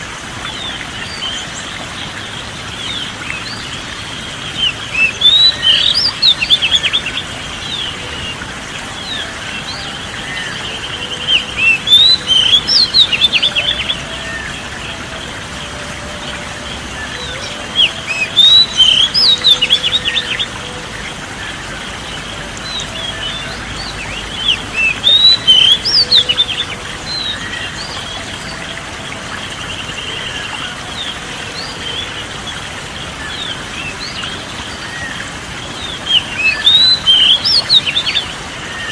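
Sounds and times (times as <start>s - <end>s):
songbird chirping: 4.5s - 32.6s.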